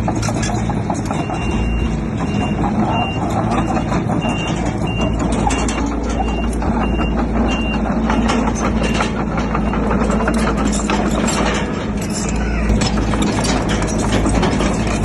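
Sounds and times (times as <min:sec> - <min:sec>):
diesel engine running: 0:00.0 - 0:15.0
metal clanks: 0:00.0 - 0:15.0
reversing alarm beeping: 0:01.1 - 0:10.8.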